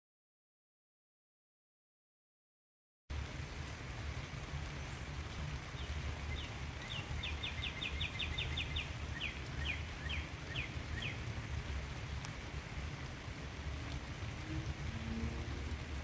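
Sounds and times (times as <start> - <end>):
steady rain: 3.1 - 16.0
songbird trilling: 6.3 - 11.2.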